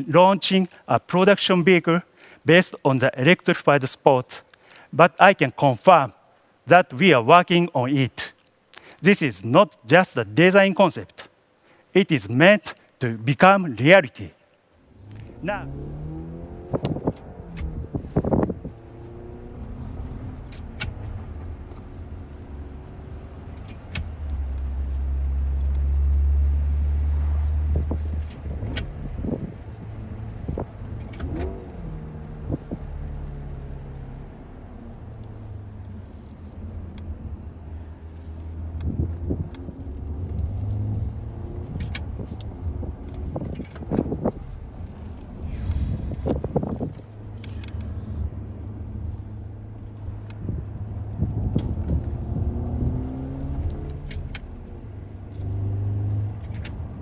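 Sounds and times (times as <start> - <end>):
car engine drive note: 14.8 - 57.0.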